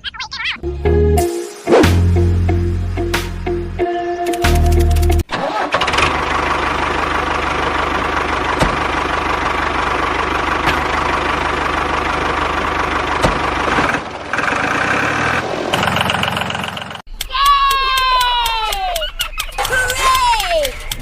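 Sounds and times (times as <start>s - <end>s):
engine idling: 4.4s - 17.2s.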